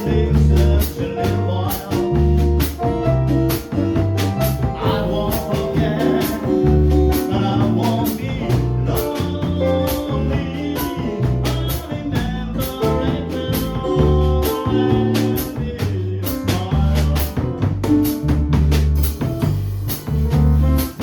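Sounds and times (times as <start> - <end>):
jazz melody: 0.0 - 21.0
walking bass line: 0.0 - 21.0.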